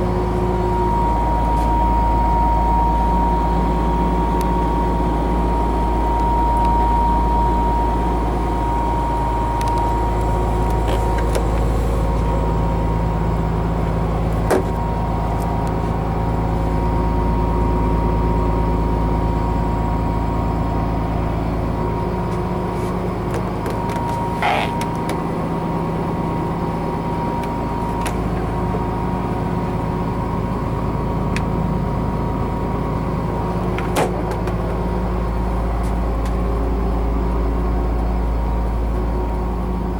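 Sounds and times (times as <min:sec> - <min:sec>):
diesel engine drone with whine: 0:00.0 - 0:39.9
short squeak: 0:23.8 - 0:25.2.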